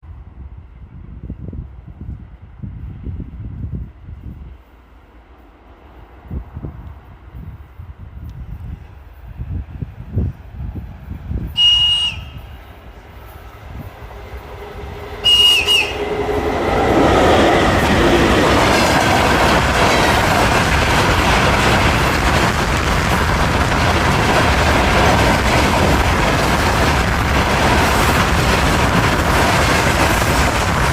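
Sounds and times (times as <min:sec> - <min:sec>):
train passing with rolling noise: 0:00.0 - 0:30.9
high locomotive whistle blasts: 0:11.5 - 0:12.7, 0:15.2 - 0:16.4.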